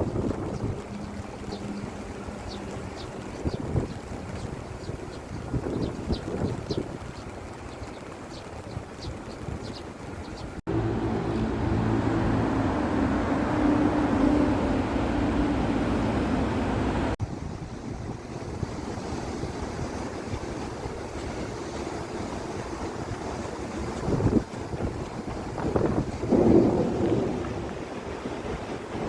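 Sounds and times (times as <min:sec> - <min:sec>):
wind noise on microphone: 0:00.0 - 0:29.0
heavy rain: 0:10.0 - 0:17.2, 0:22.1 - 0:29.0.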